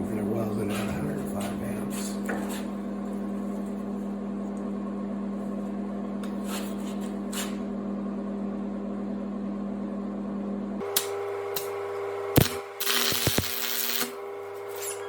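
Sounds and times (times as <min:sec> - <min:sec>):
stick welder humming: 0:10.8 - 0:15.0.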